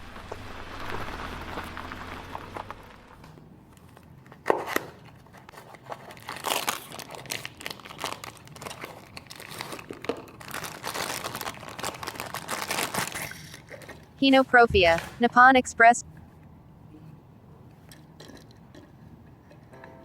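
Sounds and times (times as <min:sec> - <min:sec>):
engine-like rumble: 0:00.0 - 0:03.5
cardboard box crinkling: 0:05.5 - 0:13.8.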